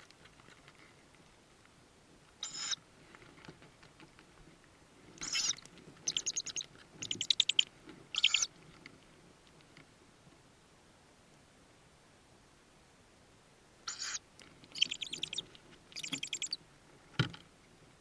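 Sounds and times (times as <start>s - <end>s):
owl chicks hissing calls: 2.4s - 2.8s, 5.2s - 8.5s, 13.9s - 16.6s.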